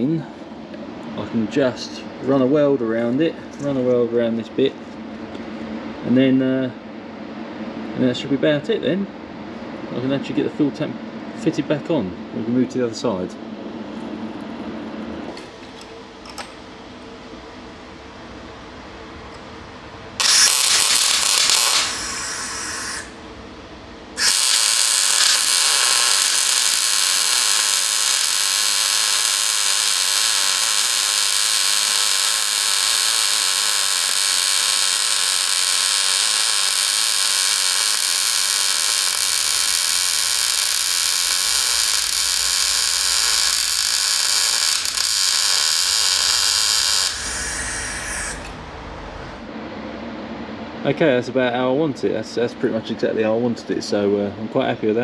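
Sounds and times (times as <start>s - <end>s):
steel being worked: 20.2s - 23.2s, 24.2s - 49.4s.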